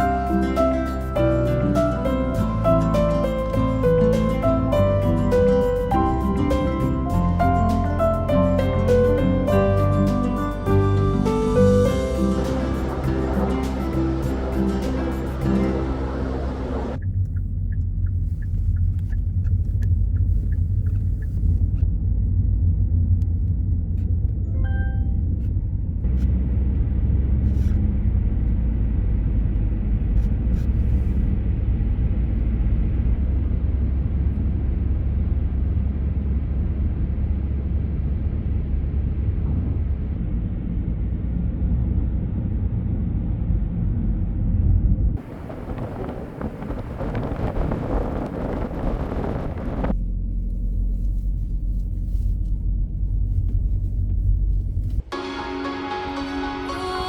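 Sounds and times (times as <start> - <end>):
car engine and tyre rumble: 0.0 - 55.2
short chime-like tone: 24.5 - 25.2.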